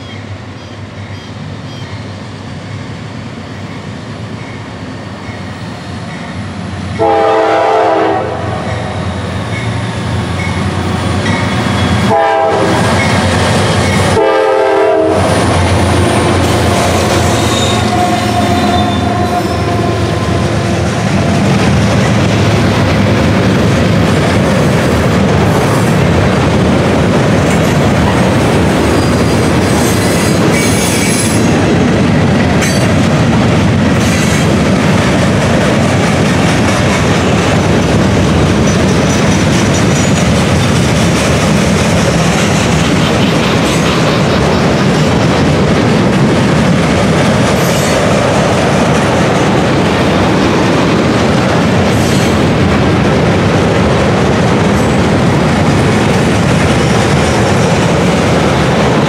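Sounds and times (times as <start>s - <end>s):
diesel locomotives passing: 0.0s - 59.0s
freight cars rolling on rails: 3.7s - 59.0s.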